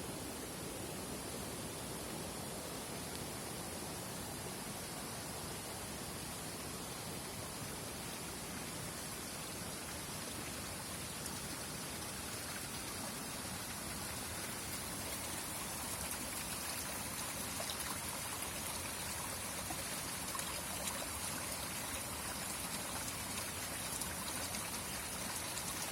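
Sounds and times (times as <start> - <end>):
faint water drips and splashes: 6.8 - 25.9
spring water trickling: 11.0 - 25.9.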